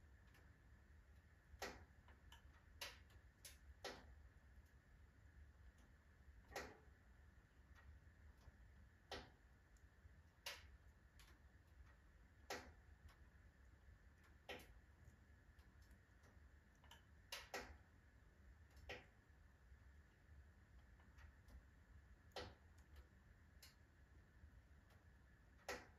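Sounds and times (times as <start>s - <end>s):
low rumble of fire: 0.0s - 25.9s
firewood crackling and popping: 1.2s - 4.8s, 6.4s - 17.9s.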